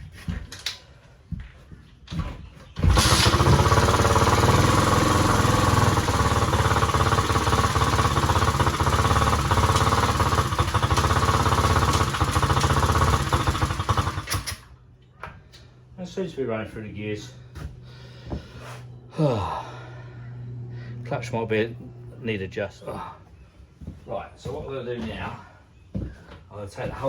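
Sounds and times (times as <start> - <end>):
dirt bike engine running: 2.8 - 14.7.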